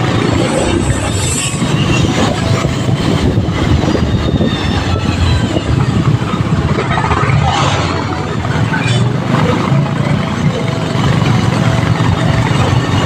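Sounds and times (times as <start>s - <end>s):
wind rushing over microphone: 0.0s - 10.0s
road noise: 0.0s - 13.0s.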